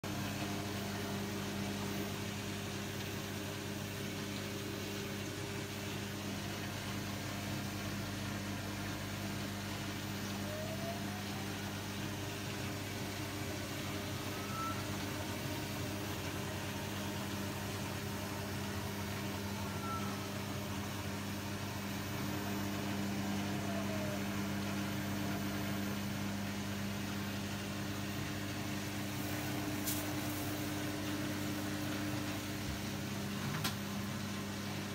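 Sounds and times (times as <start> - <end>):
machine humming: 0.0 - 34.9
faint higher tone: 13.4 - 16.8, 19.1 - 20.7.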